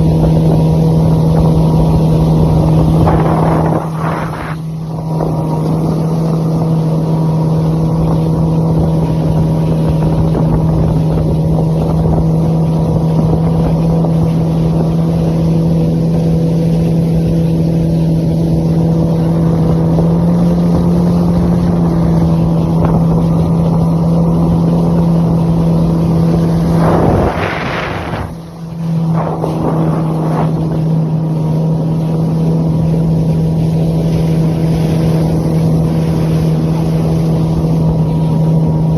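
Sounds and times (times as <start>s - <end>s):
jet ski engine running: 0.0s - 38.9s
short rushing noise: 26.6s - 30.8s.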